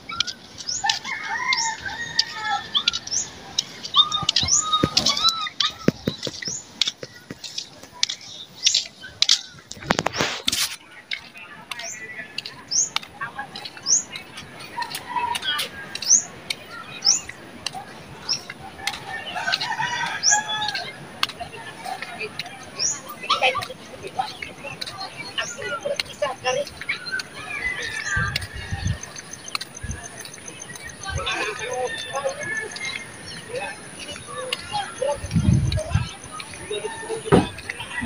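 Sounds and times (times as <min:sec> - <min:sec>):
other bird calls: 0:00.0 - 0:10.4
birds chirping: 0:00.0 - 0:38.0.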